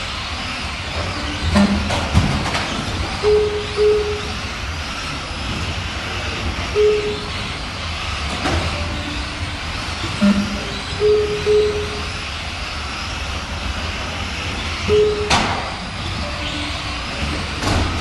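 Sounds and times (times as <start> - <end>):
rc trucks mechanical din: 0.0 - 18.0
short beeps: 3.2 - 4.4, 6.8 - 7.4, 10.2 - 12.1, 14.9 - 15.5, 16.2 - 17.2.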